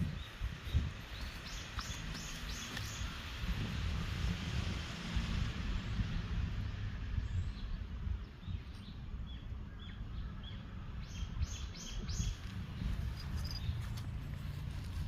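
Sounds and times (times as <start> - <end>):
small birds chirping: 0.0 - 3.4, 7.3 - 14.6
wind rumble on microphone: 0.0 - 15.0.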